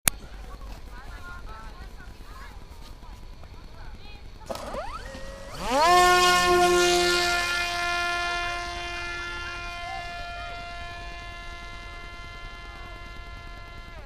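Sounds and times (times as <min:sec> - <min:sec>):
drone propeller motor whine: 0:04.3 - 0:14.0.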